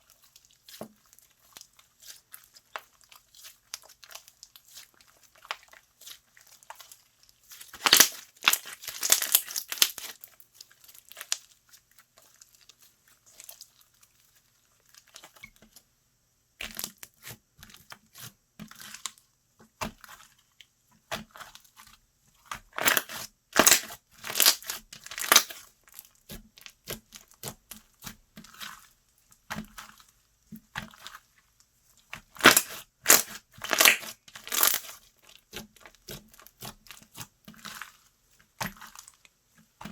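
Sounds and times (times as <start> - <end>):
slime squished by hand crackling: 7.6 - 11.5, 22.6 - 25.6, 32.1 - 37.9.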